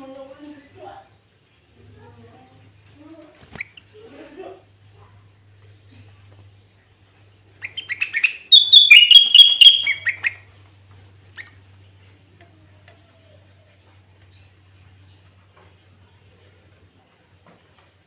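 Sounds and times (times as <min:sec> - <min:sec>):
bird chattering song: 0:07.5 - 0:10.5.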